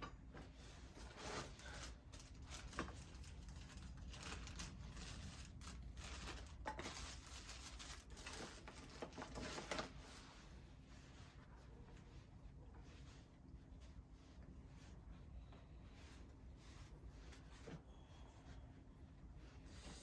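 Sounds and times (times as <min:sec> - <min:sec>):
kindling rustling and tearing: 0:01.0 - 0:10.1.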